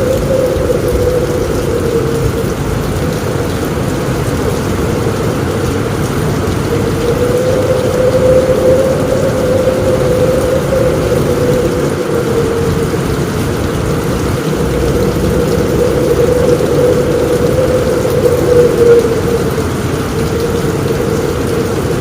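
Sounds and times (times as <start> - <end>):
heavy rain on a roof: 0.0 - 22.0
low rumble: 0.0 - 22.0
thin droning tone: 6.7 - 22.0.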